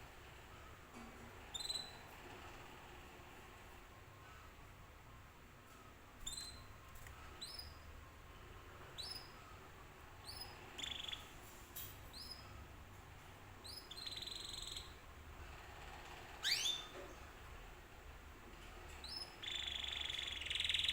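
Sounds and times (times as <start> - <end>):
canary chirping: 1.5 - 2.1, 6.2 - 7.9, 8.8 - 9.6, 10.2 - 11.5, 12.1 - 12.6, 13.6 - 17.1, 18.9 - 20.9.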